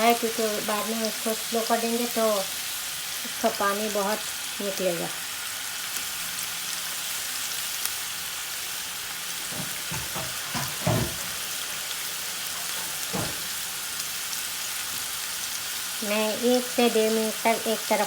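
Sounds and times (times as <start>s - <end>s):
chicken sizzling in a frying pan: 0.0s - 18.0s
dull knocks: 9.5s - 11.3s.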